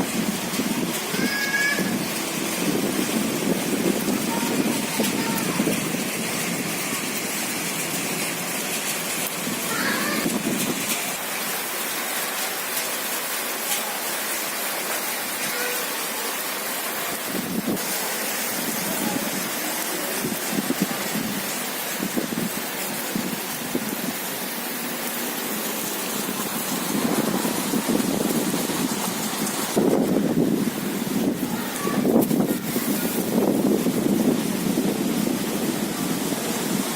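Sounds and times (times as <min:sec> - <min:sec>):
heavy rain pouring: 0:00.0 - 0:36.9.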